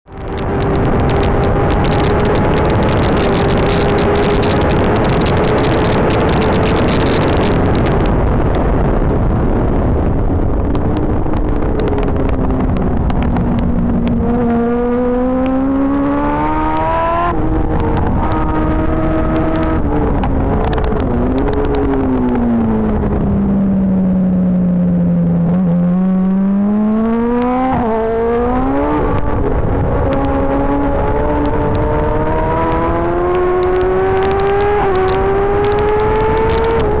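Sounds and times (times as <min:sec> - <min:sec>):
motorcycle engine revving: 0:00.1 - 0:37.0
wind rush: 0:00.1 - 0:37.0.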